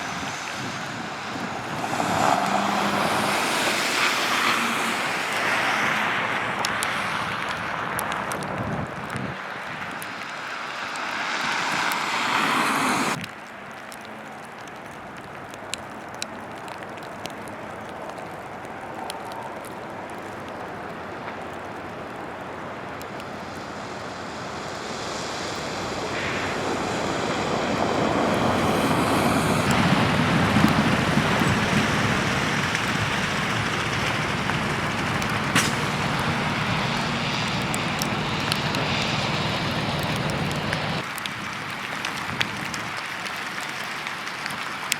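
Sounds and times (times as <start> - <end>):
vehicle passing close: 0.0 - 7.4, 10.0 - 13.2, 24.0 - 41.1
highway traffic noise: 0.0 - 44.9.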